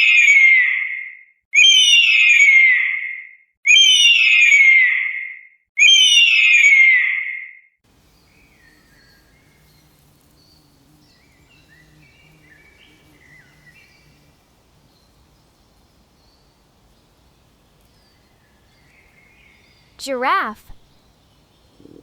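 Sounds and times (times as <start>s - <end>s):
faint bird chirps: 8.0s - 22.0s.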